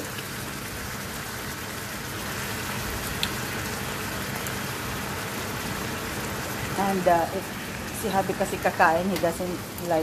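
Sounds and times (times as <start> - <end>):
chicken sizzling in a wok: 0.0 - 10.0.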